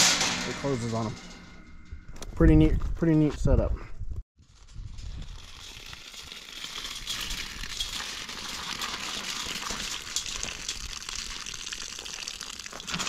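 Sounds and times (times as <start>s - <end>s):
rustling and crackling: 4.4s - 13.0s.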